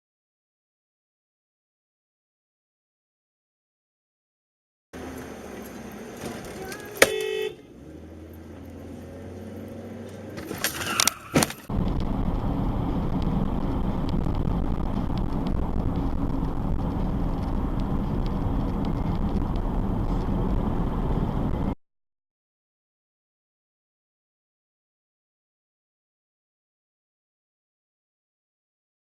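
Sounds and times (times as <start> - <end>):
road and wind noise: 5.0 - 21.8
car horn beep: 6.2 - 7.8.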